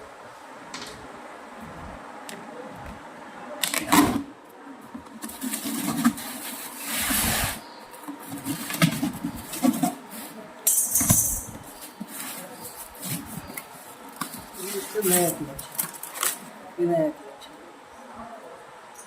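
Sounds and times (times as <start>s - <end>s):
metal parts knocking and scraping: 10.7s - 11.6s.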